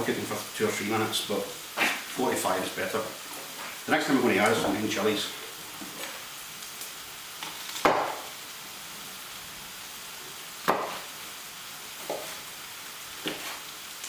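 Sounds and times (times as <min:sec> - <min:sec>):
onion sizzling in a frying pan: 0:00.0 - 0:14.0
sharp kitchen knocks: 0:07.8 - 0:08.3.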